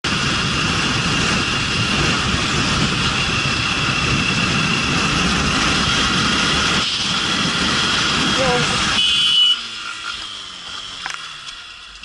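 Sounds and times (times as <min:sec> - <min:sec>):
wind rush: 0:00.0 - 0:09.0
motorcycle engine drone: 0:00.0 - 0:12.0.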